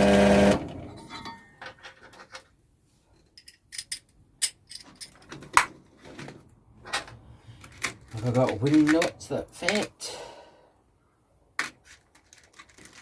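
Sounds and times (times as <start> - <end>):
small metal hardware clinking: 3.3 - 5.4.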